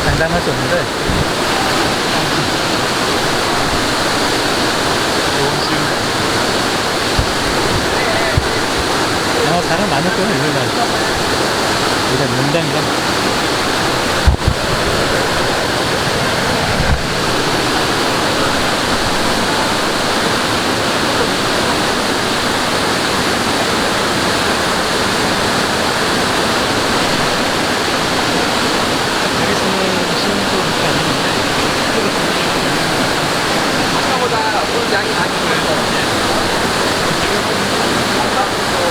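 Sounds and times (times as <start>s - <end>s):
stream rushing loudly: 0.0s - 38.9s.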